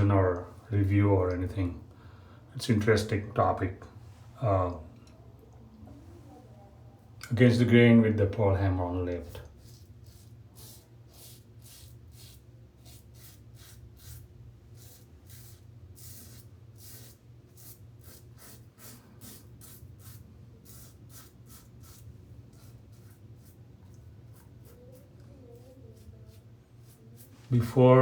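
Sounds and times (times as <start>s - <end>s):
razor scraping stubble: 9.2s - 27.8s.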